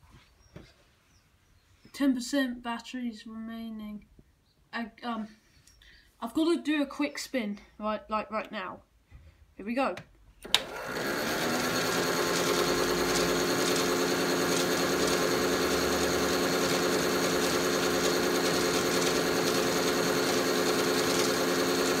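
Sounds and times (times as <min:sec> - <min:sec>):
small electric motor whirring: 0:10.5 - 0:22.0.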